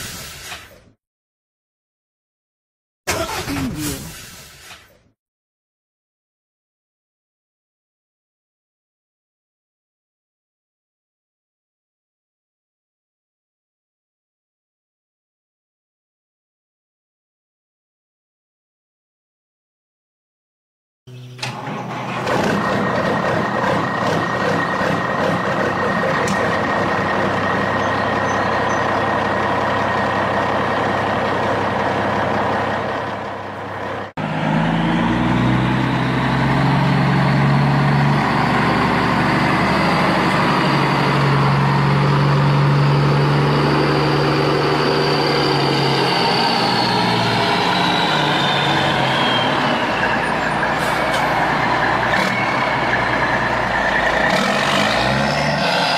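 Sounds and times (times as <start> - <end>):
deep heavy engine hum: 21.1 - 55.9
truck engine running: 21.4 - 55.6.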